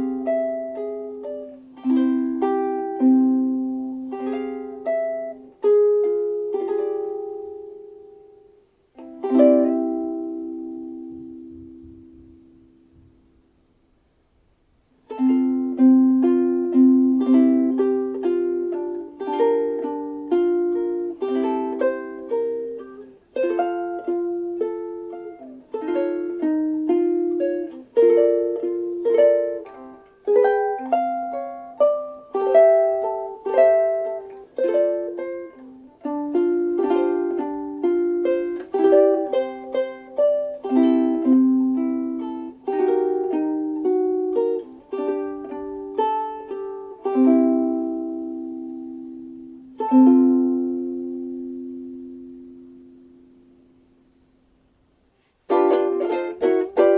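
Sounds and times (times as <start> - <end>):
ukulele strummed and plucked: 0.0 - 13.6, 15.0 - 56.9.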